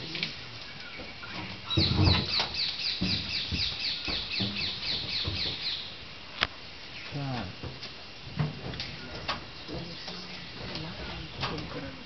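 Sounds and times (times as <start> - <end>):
low muffled sounds: 6.4 - 12.0.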